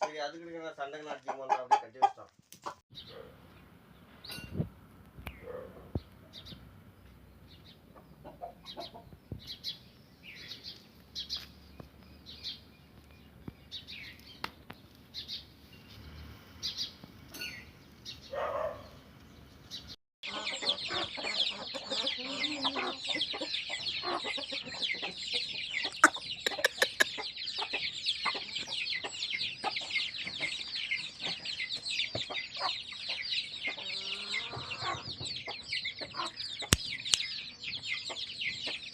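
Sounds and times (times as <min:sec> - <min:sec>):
chickens clucking: 0:00.0 - 0:03.6, 0:05.2 - 0:14.6, 0:19.8 - 0:38.9
chorus of rapid high chirps: 0:25.9 - 0:27.2.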